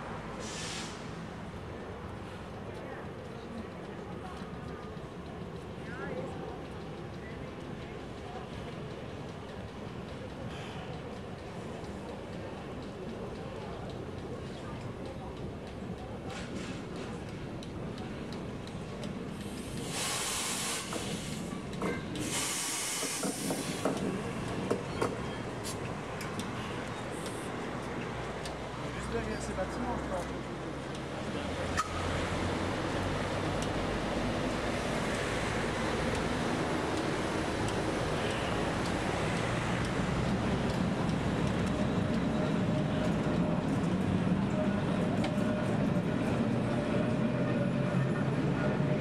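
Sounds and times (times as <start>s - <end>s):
train rumbling slowly: 0.0s - 49.0s
air hiss bursts: 0.4s - 1.2s, 19.5s - 21.5s, 22.2s - 24.0s
wheels and couplings clanking: 23.0s - 32.0s.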